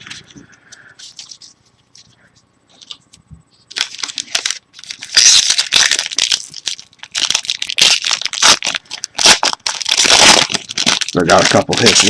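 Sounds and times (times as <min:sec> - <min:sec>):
plastic wrapper crinkling: 0:01.0 - 0:02.1, 0:03.7 - 0:12.0.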